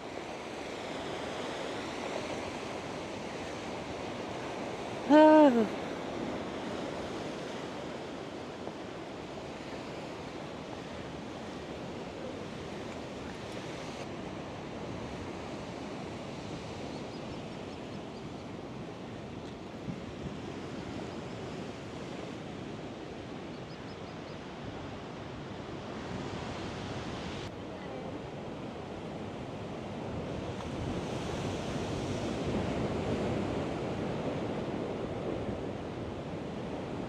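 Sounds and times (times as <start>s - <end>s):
sea surf breaking on shore: 0.0s - 16.9s, 24.6s - 37.0s.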